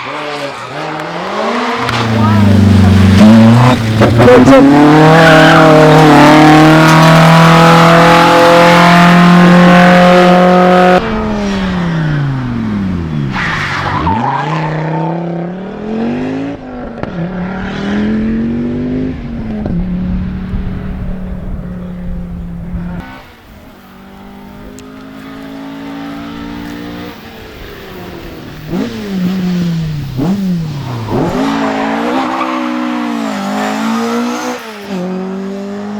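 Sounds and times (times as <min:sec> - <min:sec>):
quieter engine rising in pitch: 0:00.0 - 0:23.1
rally car accelerating: 0:00.0 - 0:35.9
rally car engine at high revs: 0:00.0 - 0:35.9.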